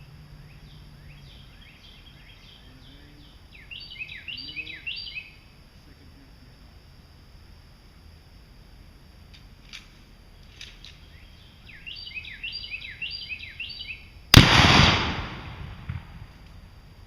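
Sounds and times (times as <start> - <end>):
bird singing: 0.0 - 5.6, 10.3 - 14.2
gunshot: 14.4 - 16.3.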